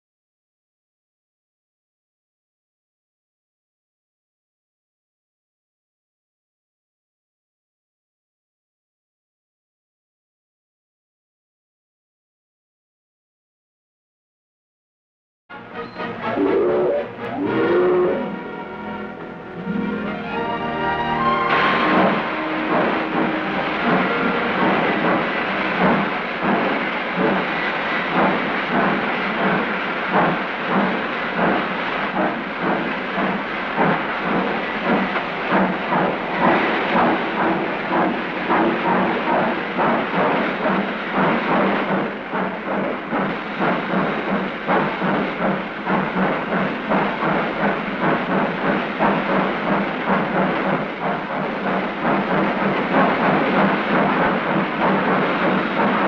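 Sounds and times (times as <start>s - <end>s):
steam locomotive exhaust chuffs: 15.5s - 56.0s
steam hissing: 15.8s - 19.6s, 20.4s - 56.0s.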